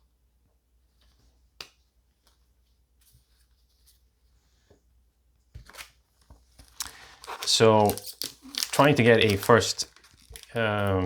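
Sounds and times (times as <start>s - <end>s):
trading cards clicking: 6.8s - 11.0s.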